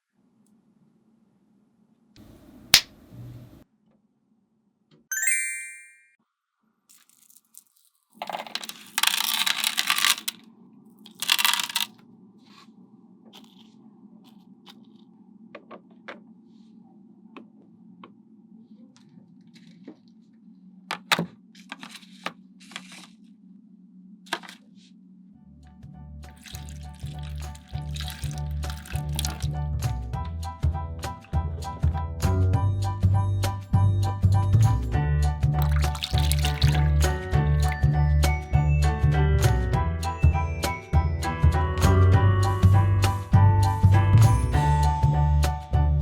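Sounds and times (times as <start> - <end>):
ringing ding: 5.1 - 6.2
magnetic balls clicking together: 11.1 - 11.9.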